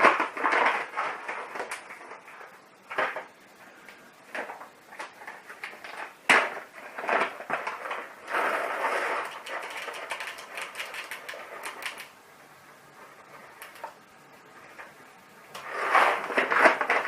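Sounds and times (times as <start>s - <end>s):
rustling: 0.0s - 17.0s.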